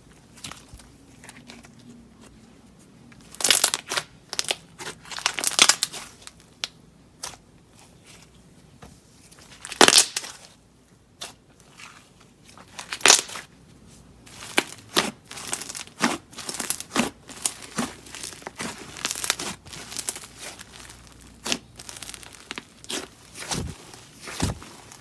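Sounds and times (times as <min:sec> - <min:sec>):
hands kneading slime: 0:00.0 - 0:25.0.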